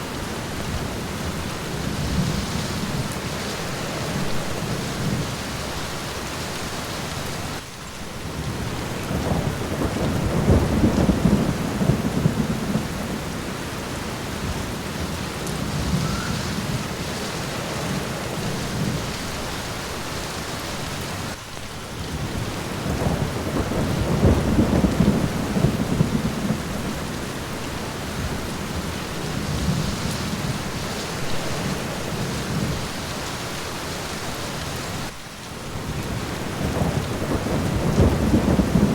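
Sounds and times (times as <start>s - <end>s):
steady rain falling: 0.0s - 38.9s
rolling thunder: 8.3s - 19.6s, 22.0s - 33.0s, 35.7s - 38.9s.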